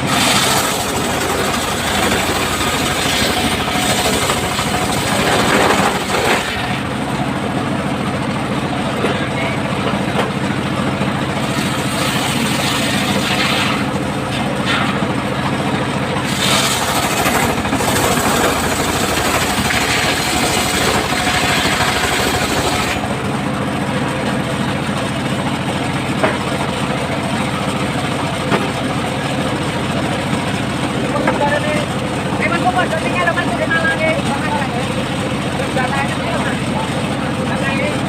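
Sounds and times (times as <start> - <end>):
saw cutting through log: 0.0 - 7.4, 10.4 - 31.8.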